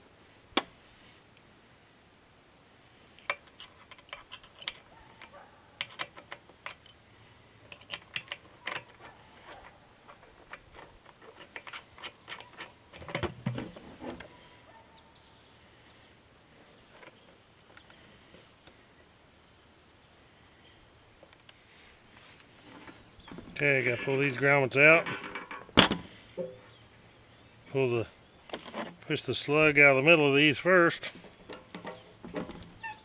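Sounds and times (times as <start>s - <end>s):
small hardware clicking and clattering: 3.2s - 7.0s, 7.6s - 14.3s.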